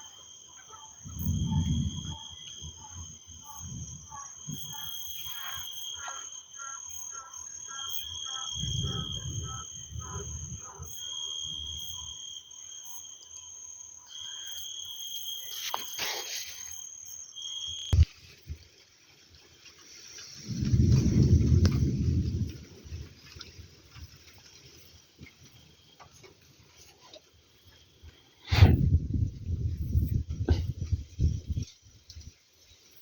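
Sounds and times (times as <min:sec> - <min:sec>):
crickets trilling: 0:00.0 - 0:33.0
distant thunder rumbles: 0:01.1 - 0:04.9, 0:08.6 - 0:11.0, 0:20.4 - 0:23.2.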